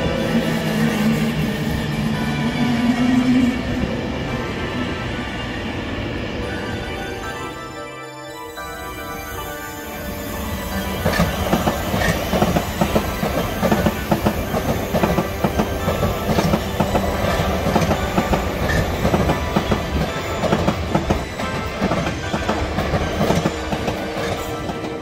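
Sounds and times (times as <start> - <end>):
train wheels clattering on rail joints: 10.8 - 25.0.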